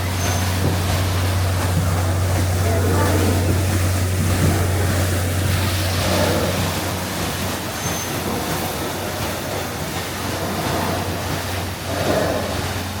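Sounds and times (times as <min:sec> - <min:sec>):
wind noise: 0:00.0 - 0:07.4
boat motor humming: 0:00.0 - 0:13.0
water wash: 0:00.0 - 0:13.0.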